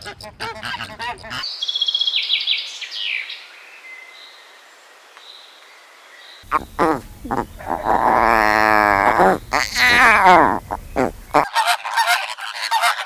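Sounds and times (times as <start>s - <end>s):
light hiss: 3.6s - 11.4s
small bird chirping: 6.3s - 11.4s
harsh animal call: 6.4s - 13.0s
loud animal call: 6.4s - 13.0s.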